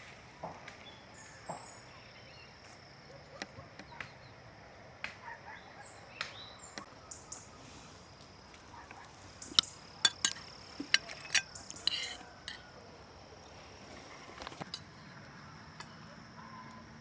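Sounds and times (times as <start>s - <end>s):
tableware clinking: 10.0s - 12.7s.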